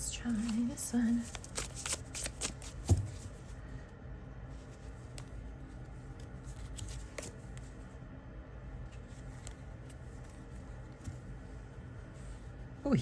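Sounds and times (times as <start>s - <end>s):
low steady hum: 0.0s - 13.0s
cards clicking and sliding: 0.4s - 3.2s, 6.1s - 7.6s.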